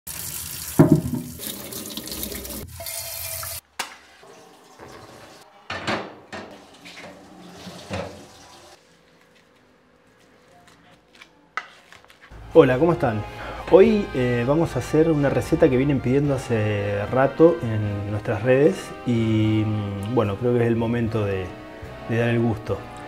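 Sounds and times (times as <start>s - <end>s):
tap water running into sink: 0.1s - 3.6s, 6.4s - 8.8s.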